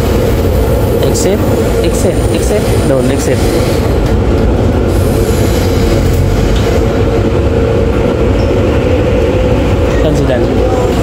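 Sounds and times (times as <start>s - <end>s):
train rumbling inside passenger car: 0.0s - 11.0s.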